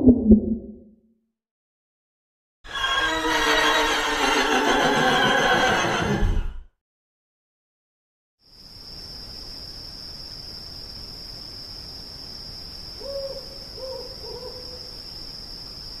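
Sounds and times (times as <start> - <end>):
cicadas buzzing: 8.4 - 16.0.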